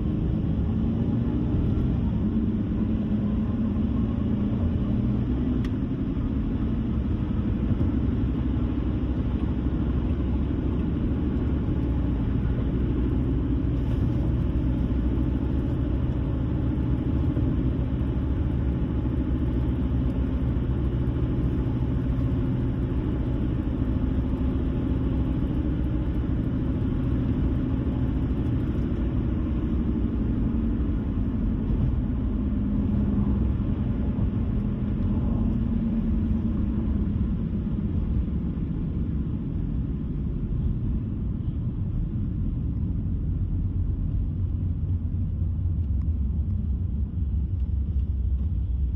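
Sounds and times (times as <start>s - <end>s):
car driving on road: 0.0s - 48.9s.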